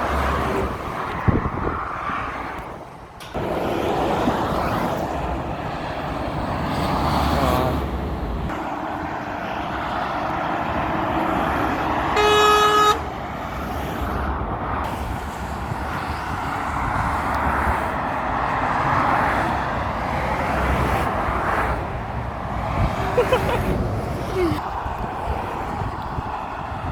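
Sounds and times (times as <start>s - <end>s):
road traffic passing: 0.0s - 26.9s
vehicle horn blast: 12.1s - 13.1s.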